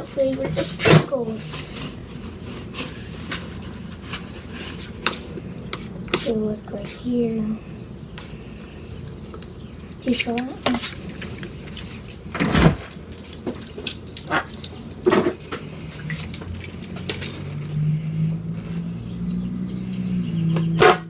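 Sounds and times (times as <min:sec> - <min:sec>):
low steady hum: 0:00.0 - 0:21.0
crisp being bitten and chewed: 0:12.9 - 0:17.8.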